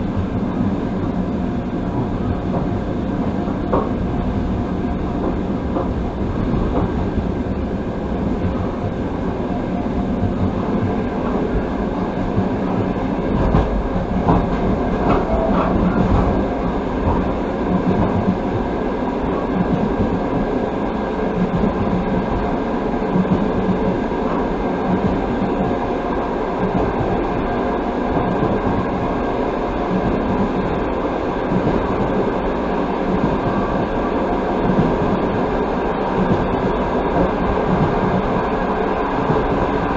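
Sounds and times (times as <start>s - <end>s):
train wheels rumbling on rail: 0.0s - 39.9s
train wheel knocks: 3.4s - 4.1s, 5.1s - 7.4s, 12.3s - 18.7s.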